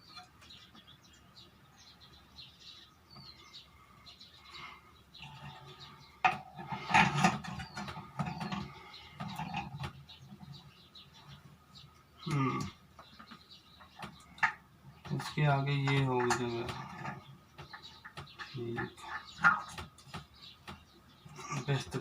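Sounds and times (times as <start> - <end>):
plastic parts knocking and rattling: 14.0 - 20.9.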